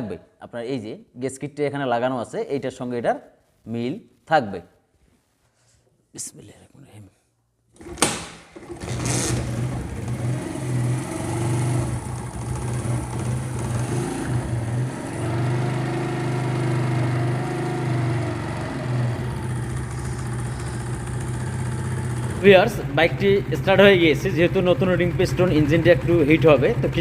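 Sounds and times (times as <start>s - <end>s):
motorcycle engine running: 8.6s - 27.0s.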